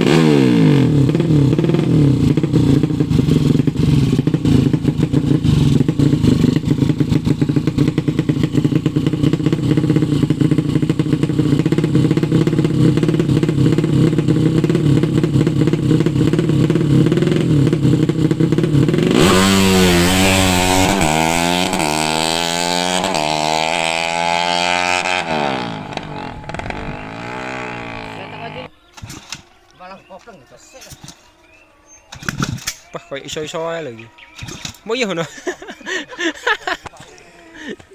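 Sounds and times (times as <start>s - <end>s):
motorcycle engine revving: 0.0s - 29.2s.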